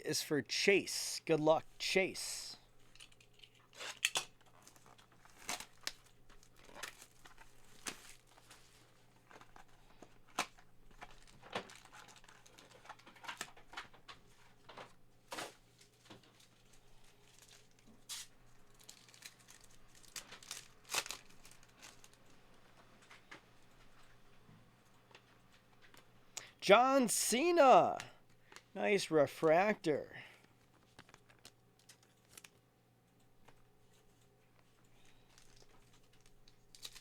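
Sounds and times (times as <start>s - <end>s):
wrappers crinkling: 2.7s - 22.4s, 30.5s - 32.6s, 34.8s - 37.0s
card packs tearing: 2.9s - 13.6s, 17.2s - 22.2s, 35.1s - 37.0s.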